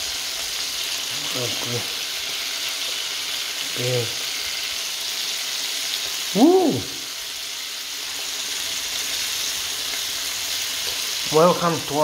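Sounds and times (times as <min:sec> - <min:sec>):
chicken wings sizzling in pan: 0:00.0 - 0:12.0
person's short voice sound: 0:06.4 - 0:07.0.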